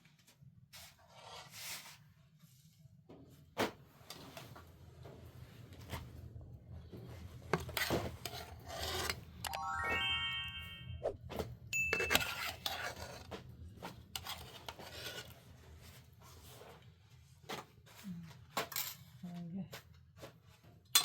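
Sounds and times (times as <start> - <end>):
bright ringing tones: 9.5 - 11.1, 11.8 - 12.5.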